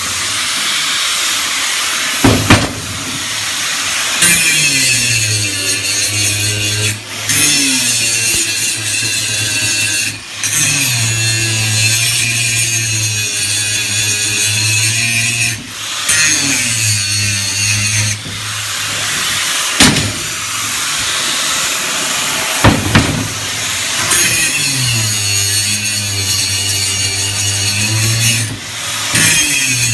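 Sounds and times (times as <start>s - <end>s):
angle grinder grinding steel: 0.0s - 29.9s
sharp metal knocks: 2.2s - 3.2s, 19.8s - 20.4s, 22.6s - 24.2s.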